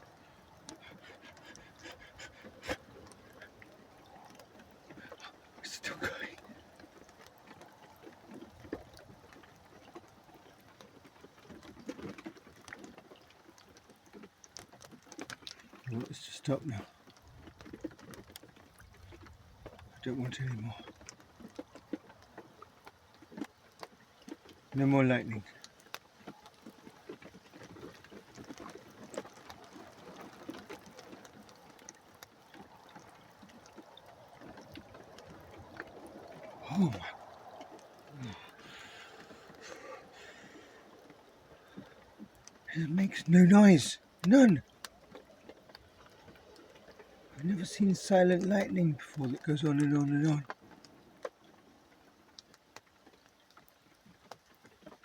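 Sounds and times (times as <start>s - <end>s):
light rain pattering: 0.0s - 55.0s
soft ticks and taps: 50.4s - 55.0s.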